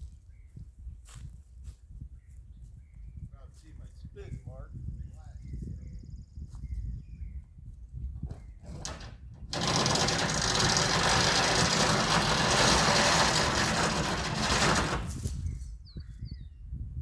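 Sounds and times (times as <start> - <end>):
pickup truck engine rumble: 8.6 - 15.6.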